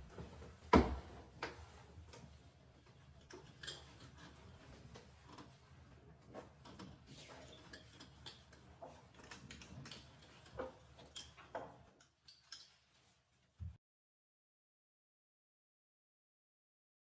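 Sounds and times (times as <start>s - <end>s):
small clicks and knocks: 6.3s - 12.8s.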